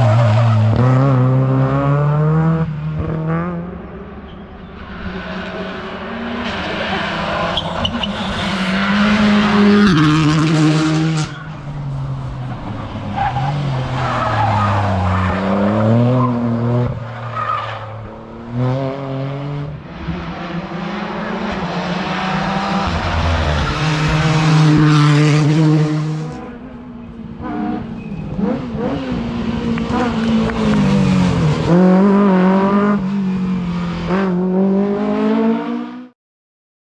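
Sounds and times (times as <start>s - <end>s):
rally car engines revving: 0.0s - 36.1s
tyre squeal: 27.9s - 28.5s.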